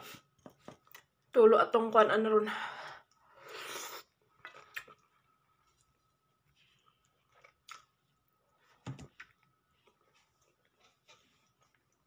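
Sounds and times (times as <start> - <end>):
faint chewing and mouth sounds: 3.0 - 12.0.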